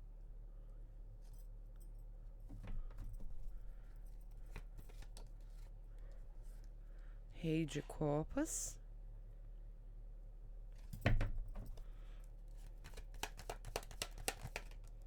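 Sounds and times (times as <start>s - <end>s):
cards clicking and sliding: 12.6s - 15.0s.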